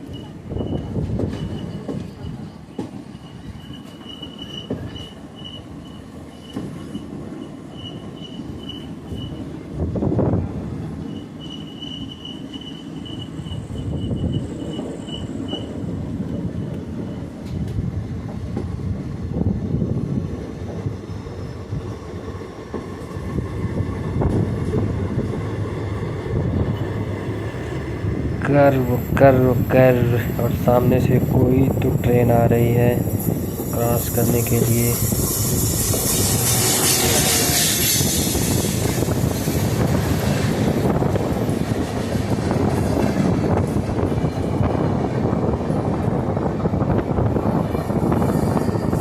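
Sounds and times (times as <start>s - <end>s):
wheel flanges squealing: 0.0s - 9.4s, 11.0s - 17.3s, 26.5s - 41.3s
train wheels rumbling on rail: 0.0s - 49.0s.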